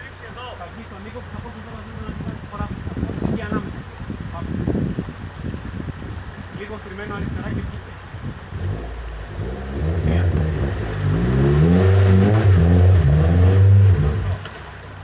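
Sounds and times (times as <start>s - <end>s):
off-road vehicle engine revving: 7.8s - 15.0s.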